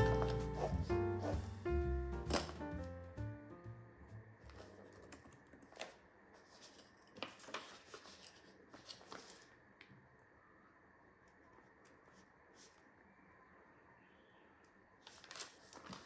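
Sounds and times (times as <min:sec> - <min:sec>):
background music: 0:00.0 - 0:04.4.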